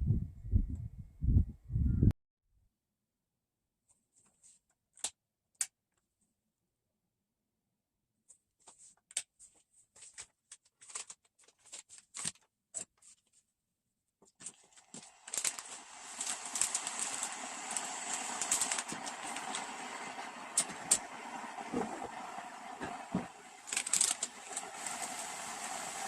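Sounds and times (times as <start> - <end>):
steady rushing noise: 15.2 - 26.0.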